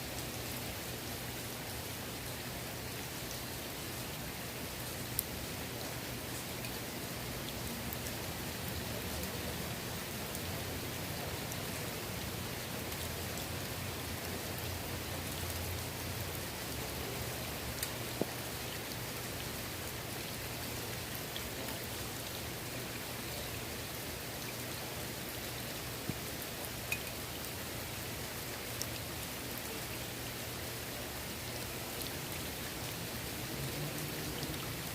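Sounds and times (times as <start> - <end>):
rain on pool water: 0.0 - 34.9.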